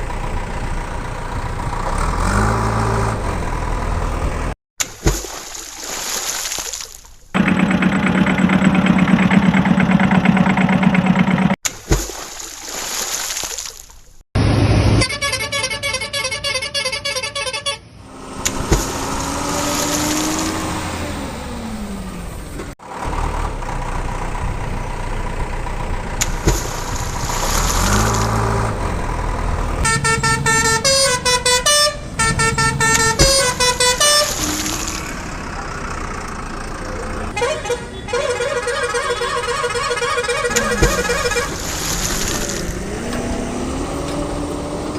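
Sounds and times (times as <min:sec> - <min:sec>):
vehicle horn honks: 0:15.0 - 0:17.9, 0:29.8 - 0:34.8, 0:37.3 - 0:41.6.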